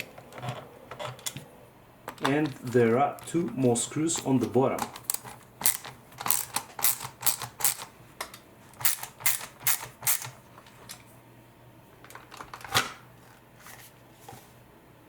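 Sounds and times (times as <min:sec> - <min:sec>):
screwdriver clicking on screws: 0:04.2 - 0:10.4.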